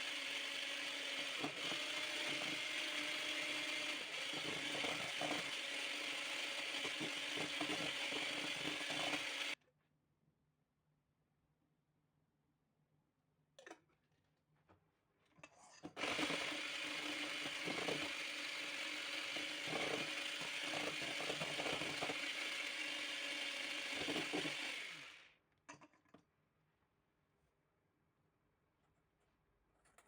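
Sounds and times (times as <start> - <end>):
kitchen appliance motor grinding: 0.0 - 9.6, 16.0 - 25.3.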